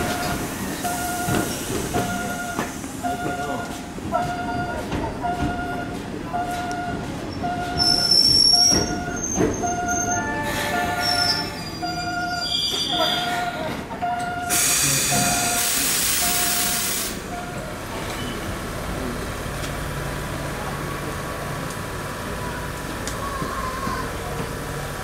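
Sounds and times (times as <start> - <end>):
train wheels squealing: 7.4 - 13.7
air hiss: 14.5 - 17.2.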